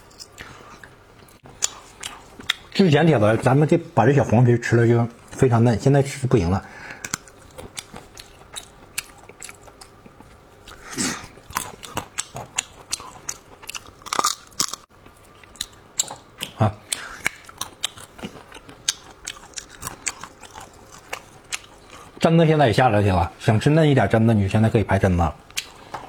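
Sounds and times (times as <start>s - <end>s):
chewing crunchy almonds: 6.9s - 22.2s.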